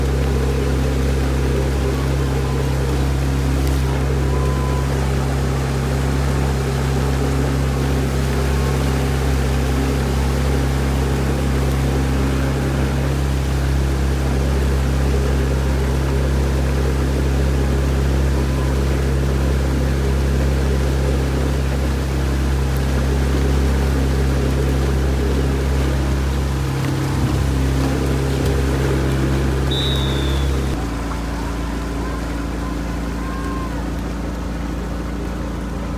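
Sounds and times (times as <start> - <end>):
motorboat engine droning: 0.0 - 35.9
water wash: 0.0 - 35.9.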